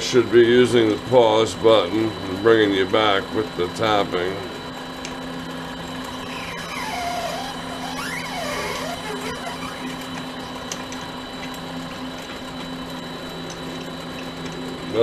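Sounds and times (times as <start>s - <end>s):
wavering high tone: 6.1s - 10.6s.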